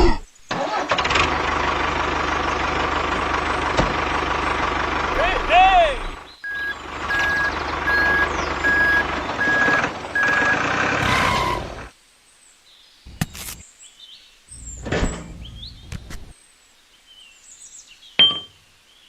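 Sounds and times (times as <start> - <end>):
reversing alarm beeping: 6.4 - 11.8.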